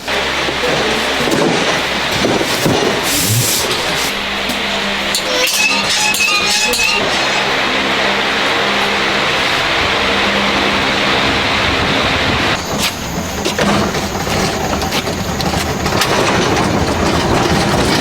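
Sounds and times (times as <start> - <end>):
machinery hiss and hum: 0.0 - 18.0
metal clatter and knocks: 9.6 - 18.0.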